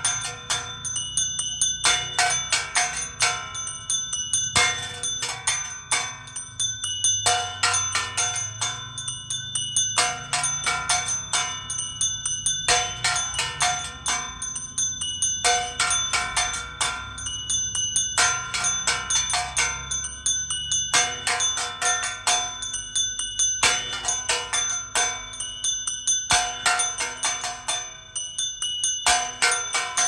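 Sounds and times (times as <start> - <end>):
church bells ringing a peal: 0.0 - 6.6.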